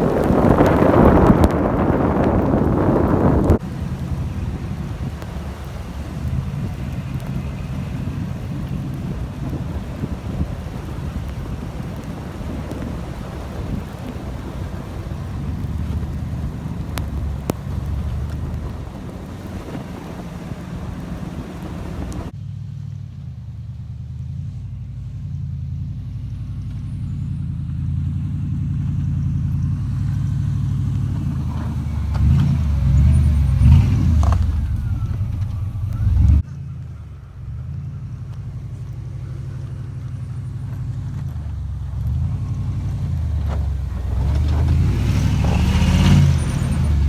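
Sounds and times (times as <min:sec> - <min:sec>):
low engine rumble: 0:00.0 - 0:47.0
motor vehicle engine: 0:00.0 - 0:47.0
road noise: 0:00.0 - 0:47.0.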